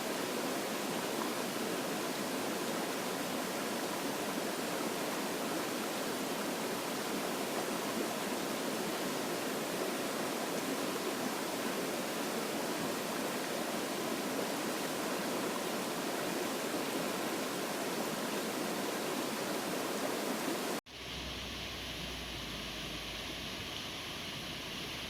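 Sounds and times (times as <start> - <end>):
stream water rushing: 0.0 - 25.0
low hum: 20.9 - 24.7.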